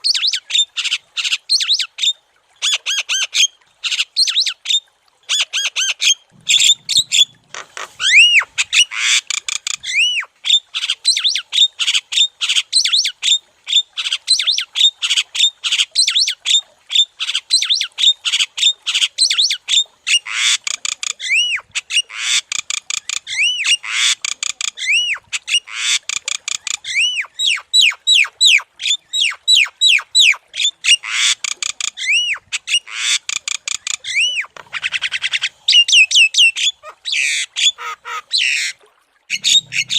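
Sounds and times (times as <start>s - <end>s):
myna bird singing: 39.3s - 39.9s.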